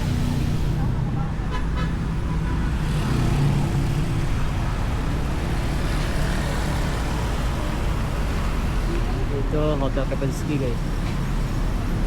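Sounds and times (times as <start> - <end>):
cars passing: 0.0 - 12.0.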